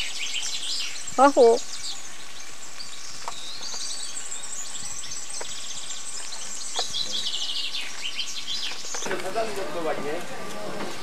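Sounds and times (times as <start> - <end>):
songbirds chirping and singing: 0.0 - 11.0.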